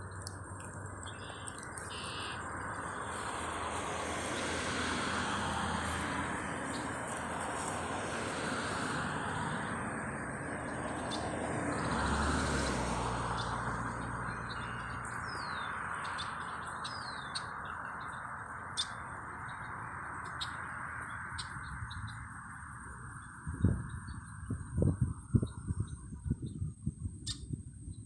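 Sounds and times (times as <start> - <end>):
bird chirping: 0.0 - 3.5, 13.4 - 22.3.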